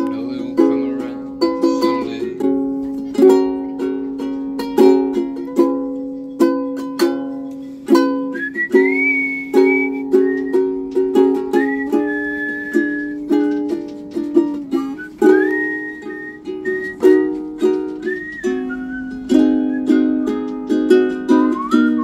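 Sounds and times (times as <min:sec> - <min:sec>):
strummed string instrument chords: 0:00.0 - 0:22.0
high whistled note: 0:15.0 - 0:17.2.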